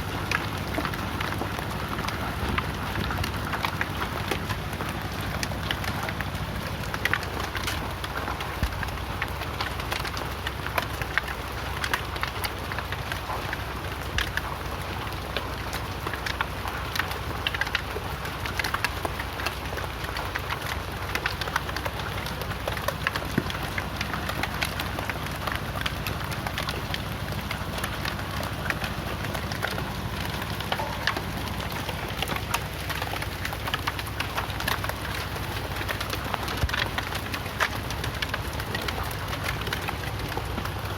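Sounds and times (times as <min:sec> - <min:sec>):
hailstones clattering: 0:00.0 - 0:40.9
rain hissing: 0:19.2 - 0:40.9.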